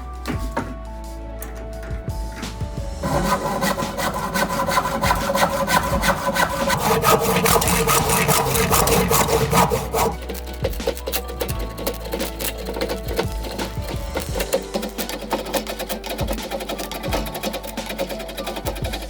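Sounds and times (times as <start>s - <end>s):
hand saw cutting wood: 3.0s - 19.0s.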